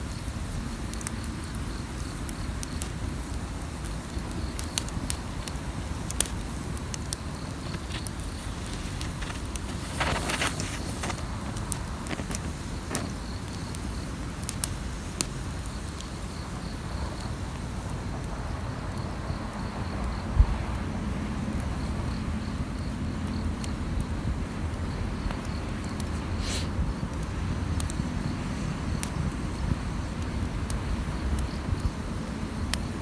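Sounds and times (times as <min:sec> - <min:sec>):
insect chirping: 0:00.0 - 0:20.7
campfire crackling: 0:00.0 - 0:33.0.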